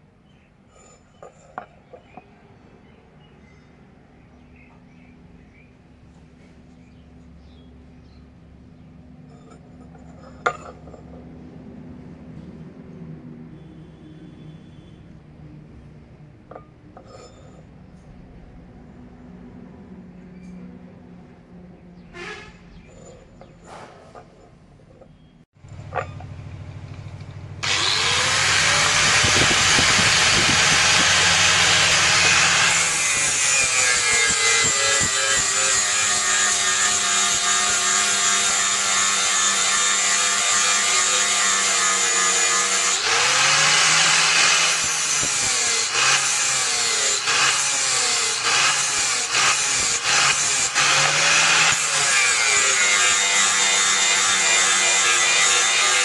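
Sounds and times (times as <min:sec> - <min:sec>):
electric grinder on steel: 0:27.6 - 0:56.0.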